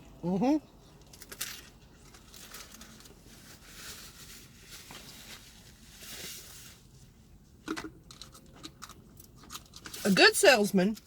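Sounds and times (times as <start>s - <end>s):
soft rustling: 2.0s - 7.2s.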